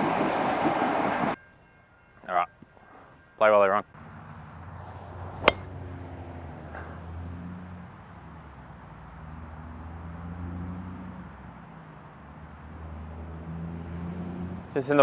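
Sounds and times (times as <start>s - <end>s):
golf club striking ball: 5.4s - 5.7s.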